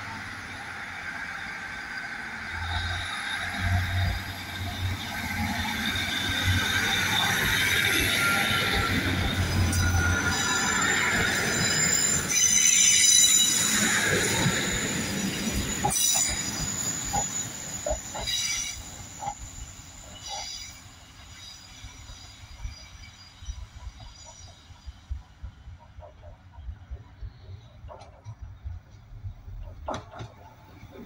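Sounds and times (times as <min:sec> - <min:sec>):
train wheels squealing: 0:00.0 - 0:31.0
train clicks: 0:11.8 - 0:31.0.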